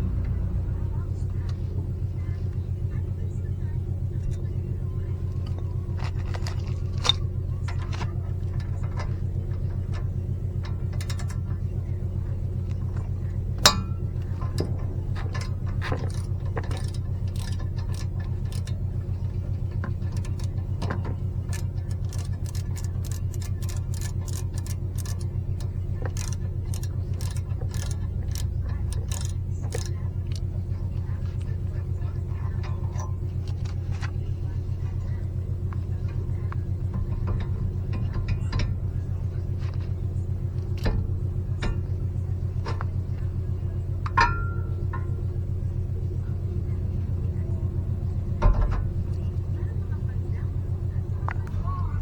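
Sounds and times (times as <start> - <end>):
low engine hum: 0.0 - 52.0
metal tools clinking: 4.2 - 11.6, 12.8 - 31.6.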